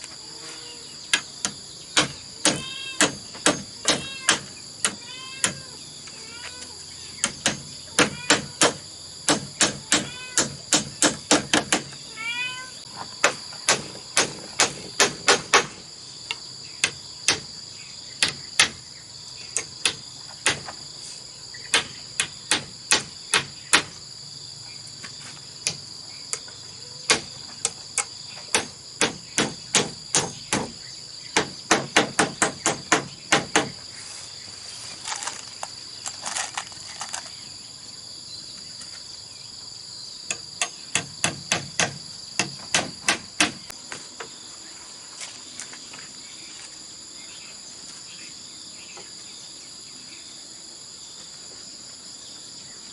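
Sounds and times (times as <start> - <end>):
insects droning: 0.0 - 52.9
tool striking bamboo: 1.1 - 5.6, 7.2 - 12.0, 13.2 - 17.5, 18.2 - 18.8, 19.6 - 20.8, 21.7 - 24.0, 27.1 - 30.8, 31.4 - 33.8, 40.3 - 43.7.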